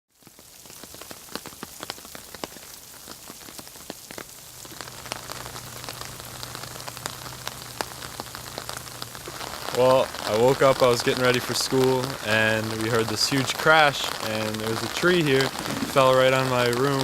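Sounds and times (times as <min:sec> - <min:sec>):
rain dripping on hard surfaces: 0:00.1 - 0:17.0
low steady hum: 0:04.4 - 0:16.9.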